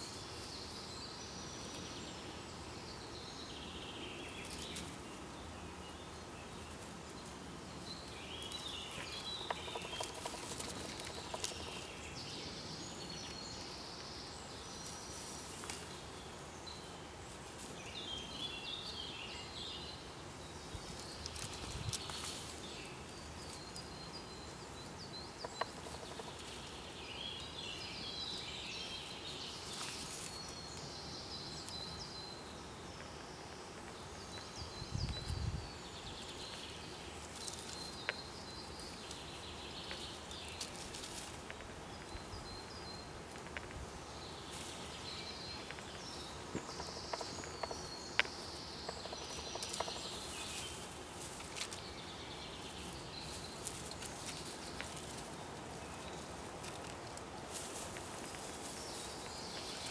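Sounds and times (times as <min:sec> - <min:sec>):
songbirds singing: 0:00.0 - 0:59.9
small clicks and rustles: 0:08.9 - 0:11.9, 0:20.9 - 0:22.7, 0:38.8 - 0:42.4, 0:44.5 - 0:52.0, 0:52.6 - 0:59.9.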